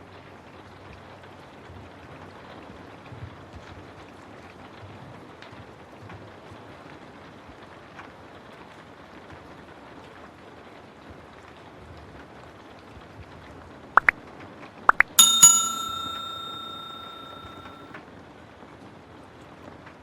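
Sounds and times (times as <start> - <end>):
small bell ringing: 15.2 - 17.8.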